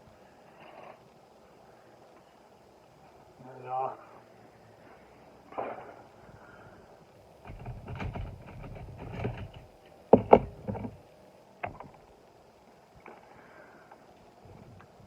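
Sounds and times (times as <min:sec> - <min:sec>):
clicking and rattling of model vehicles: 0:07.4 - 0:11.0
sharp knocks: 0:07.4 - 0:11.0, 0:11.6 - 0:12.0.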